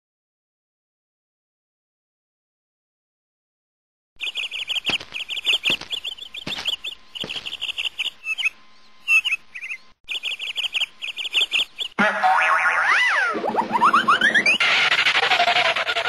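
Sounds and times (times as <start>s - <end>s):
birds chirping in trills: 4.2s - 16.0s.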